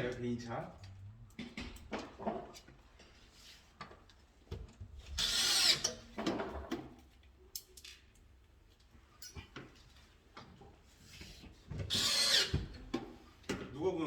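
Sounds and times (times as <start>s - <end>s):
power drill running: 5.2s - 5.8s, 11.9s - 12.5s.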